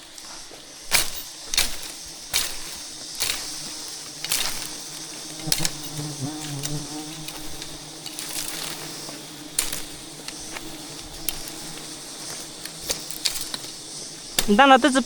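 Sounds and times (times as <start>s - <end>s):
bees buzzing: 0.0s - 15.0s
hive clicks and crackles: 0.0s - 15.0s.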